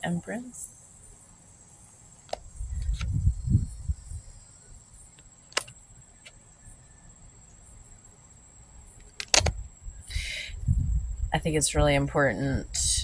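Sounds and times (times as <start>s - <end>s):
handling clicks and knocks: 5.2s - 6.4s, 9.0s - 9.6s.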